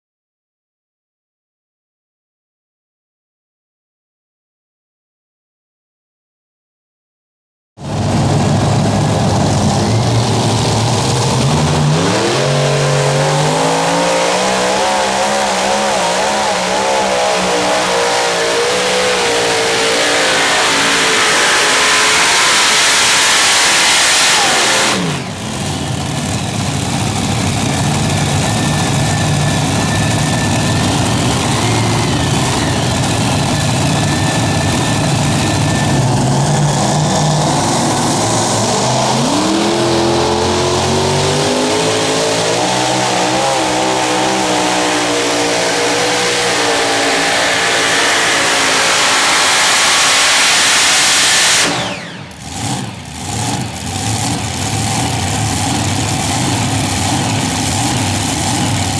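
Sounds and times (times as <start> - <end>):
tractor engine running hard: 7.8 - 58.9.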